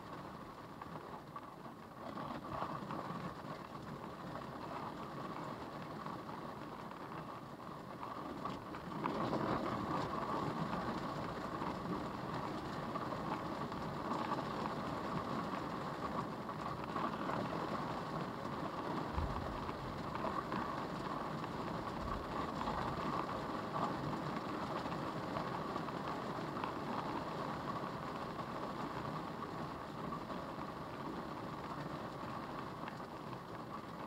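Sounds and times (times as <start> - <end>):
rain and wind beating on car: 0.0 - 34.0
low thumps: 19.2 - 19.8.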